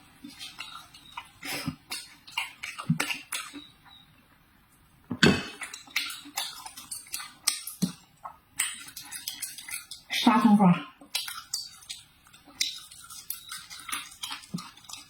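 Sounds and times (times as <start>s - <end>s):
crisp eating crunches: 11.0s - 15.0s.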